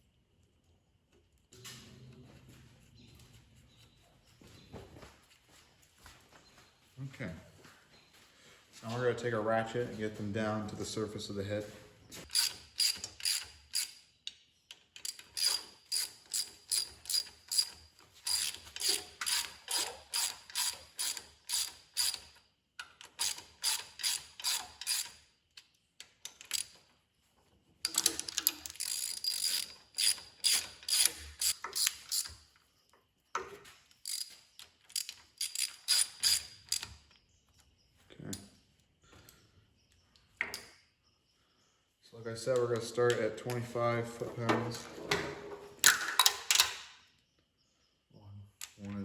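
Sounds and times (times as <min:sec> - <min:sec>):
hand ratchet clicking: 0:12.3 - 0:14.0, 0:15.0 - 0:25.2, 0:27.9 - 0:32.3, 0:34.0 - 0:36.9.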